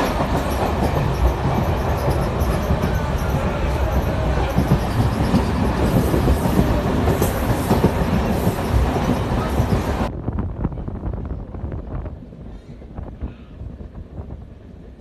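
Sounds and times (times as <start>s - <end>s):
train knocks: 0.0s - 10.1s
train rumbling: 0.0s - 15.0s.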